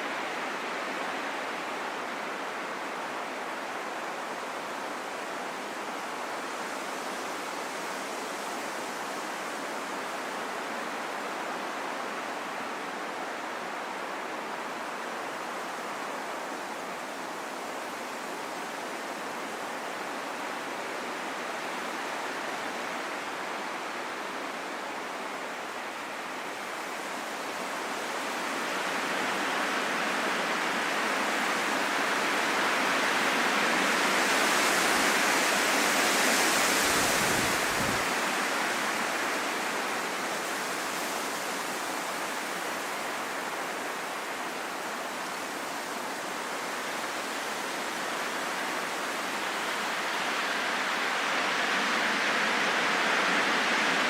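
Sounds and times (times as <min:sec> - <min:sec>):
strong wind blowing: 0:34.3 - 0:39.1.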